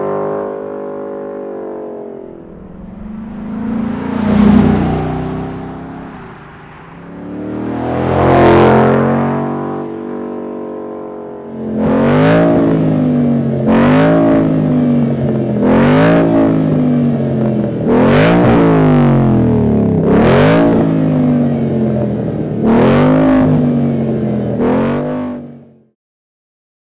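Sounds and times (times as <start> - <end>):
car engine revving and idling: 2.3 - 9.6, 11.5 - 25.8.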